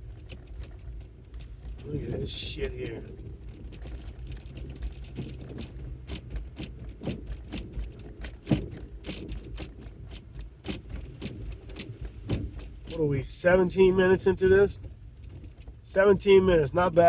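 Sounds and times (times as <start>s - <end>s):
car rolling rumble: 0.0s - 17.0s
tyres crunching on snow and ice: 0.0s - 17.0s.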